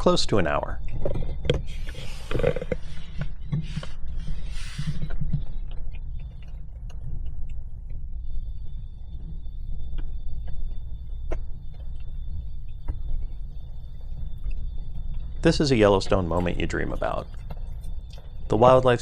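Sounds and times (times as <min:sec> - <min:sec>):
soft hissing: 0:01.7 - 0:05.4.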